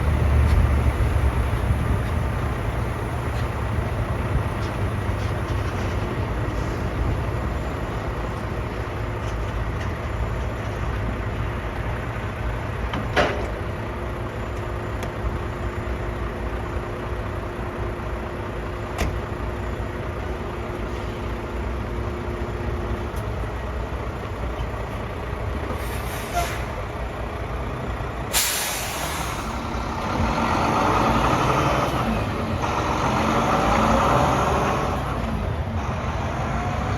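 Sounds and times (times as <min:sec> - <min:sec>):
truck diesel engine running: 0:00.0 - 0:36.9
air brake hiss: 0:25.7 - 0:26.8, 0:28.3 - 0:29.6
air hiss: 0:28.3 - 0:29.6.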